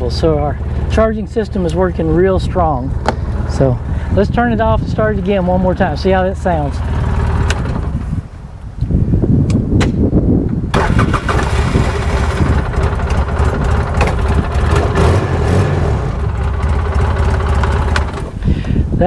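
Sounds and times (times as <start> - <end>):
engine starter cranking: 0.0 - 8.3, 10.7 - 18.8
engine idling: 0.0 - 8.4, 10.7 - 19.0.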